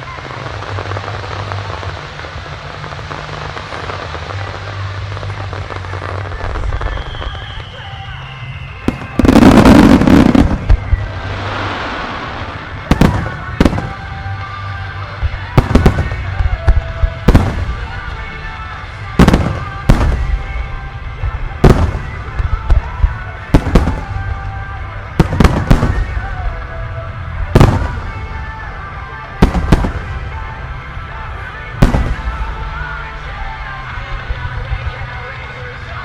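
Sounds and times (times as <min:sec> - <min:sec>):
background music: 0:00.0 - 0:36.0
fireworks bursting: 0:00.0 - 0:36.0.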